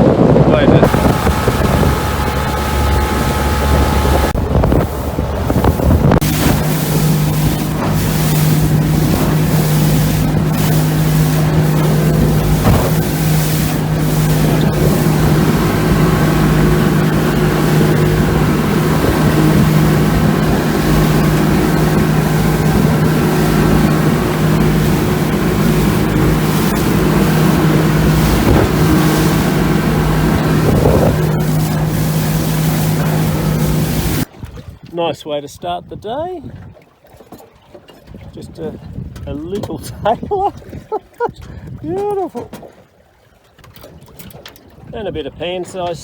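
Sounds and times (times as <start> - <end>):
boat engine drone: 0.0 - 34.3
wind buffeting microphone: 0.0 - 34.9, 38.0 - 42.0.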